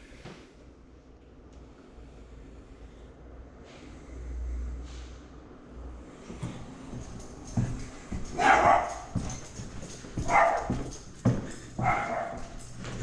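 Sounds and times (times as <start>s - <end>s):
dog barking: 8.3s - 9.3s, 10.2s - 11.0s, 11.8s - 12.5s.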